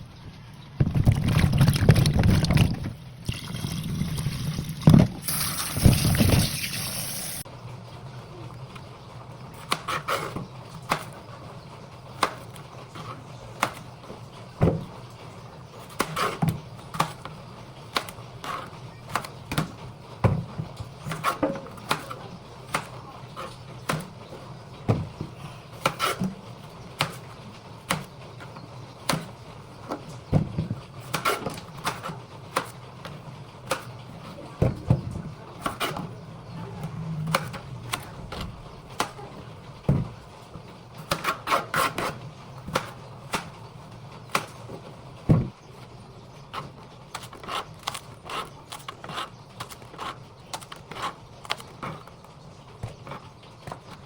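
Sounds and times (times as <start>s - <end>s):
heavy thumps: 4.6s - 6.5s, 39.8s - 40.3s, 45.3s - 45.6s.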